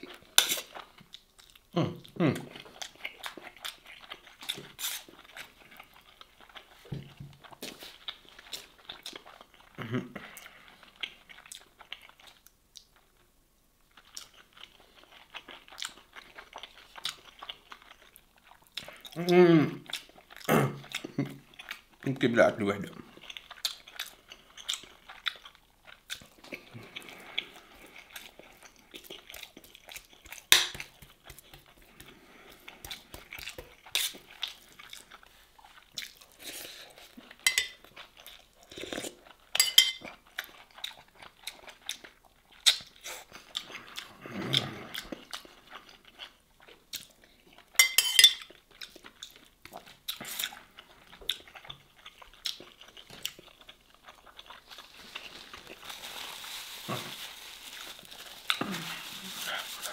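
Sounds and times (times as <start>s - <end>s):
person chewing: 0.0s - 13.3s, 13.9s - 22.0s, 23.0s - 59.9s
fork clinking on metal tray: 37.5s - 37.8s, 47.8s - 48.4s.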